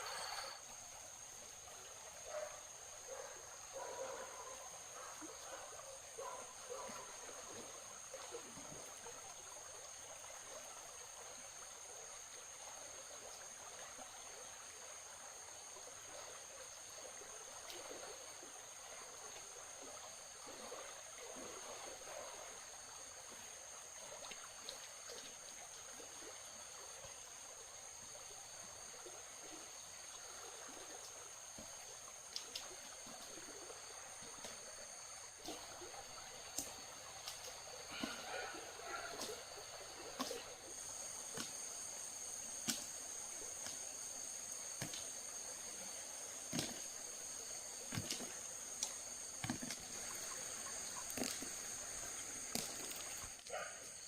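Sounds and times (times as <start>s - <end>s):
water trickling: 15.8s - 53.8s.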